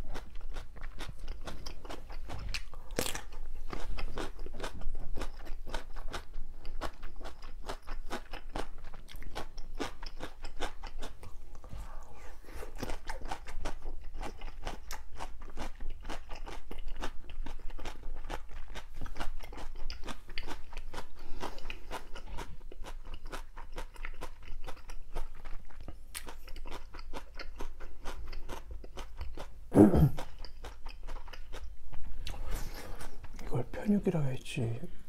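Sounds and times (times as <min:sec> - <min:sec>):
wet mouth chewing smacks: 0:15.7 - 0:29.5
low mouth sound: 0:29.7 - 0:30.3.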